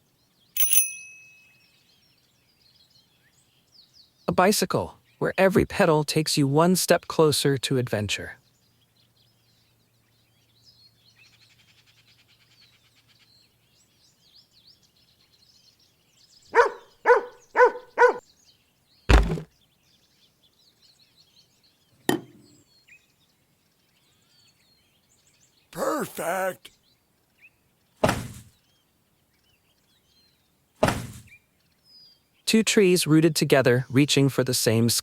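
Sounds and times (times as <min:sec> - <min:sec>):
faint birds chirping: 0:00.0 - 0:35.0
heavy thump: 0:19.1 - 0:19.5, 0:28.0 - 0:28.5, 0:30.8 - 0:31.3.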